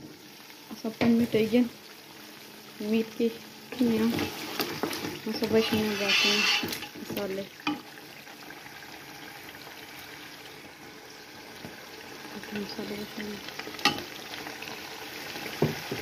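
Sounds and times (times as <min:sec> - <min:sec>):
meat sizzling in a frying pan: 0:00.0 - 0:16.0
wooden spatula stirring: 0:03.7 - 0:07.9.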